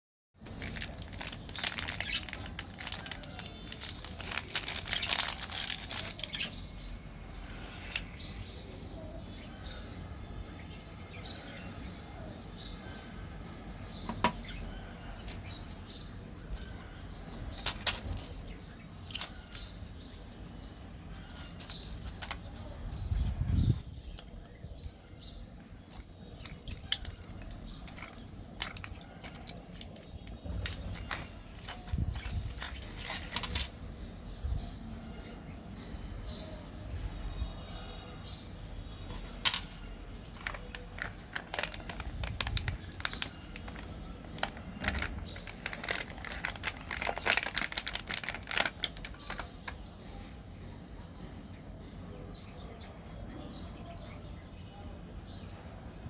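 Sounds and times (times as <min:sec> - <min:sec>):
plastic wrappers crinkling: 0:00.4 - 0:08.6, 0:16.4 - 0:19.9, 0:25.6 - 0:33.8, 0:38.6 - 0:49.8.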